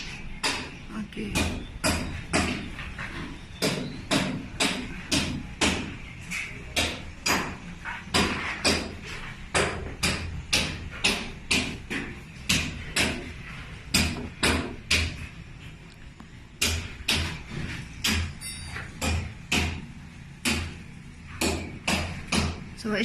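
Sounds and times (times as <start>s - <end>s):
sharp knocks: 0.4s - 15.3s, 16.6s - 22.7s.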